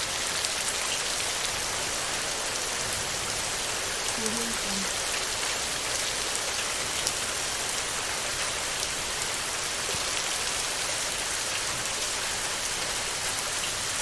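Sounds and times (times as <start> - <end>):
heavy rain on a tin roof: 0.0 - 14.0.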